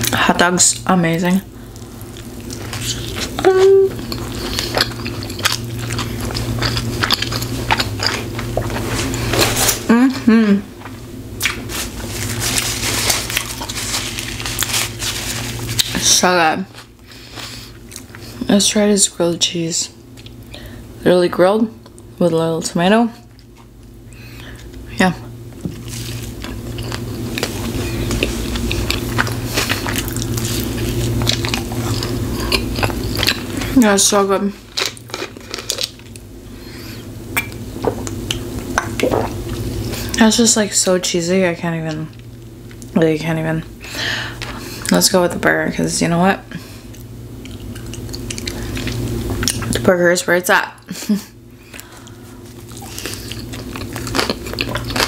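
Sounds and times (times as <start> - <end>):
steady low hum: 0.0 - 55.0
close chewing with mouth clicks: 1.7 - 9.6, 25.8 - 33.8, 46.9 - 49.8, 51.7 - 55.0
person humming: 3.4 - 4.0, 9.8 - 10.7.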